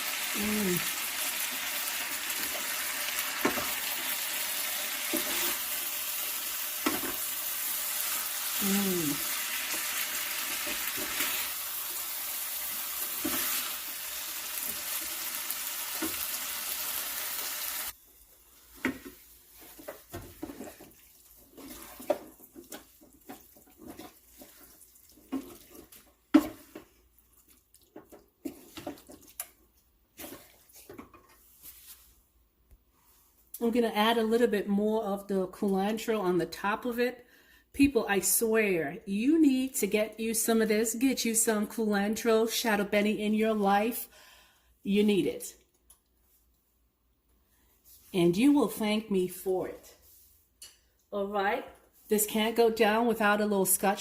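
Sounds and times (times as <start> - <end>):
chicken sizzling in a pot: 0.0 - 27.6.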